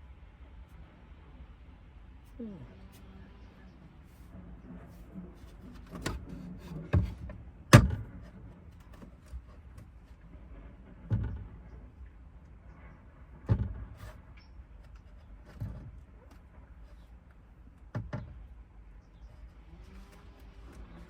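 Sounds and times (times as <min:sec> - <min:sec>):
dull knocks and clunks: 0:04.6 - 0:12.1, 0:12.7 - 0:18.6.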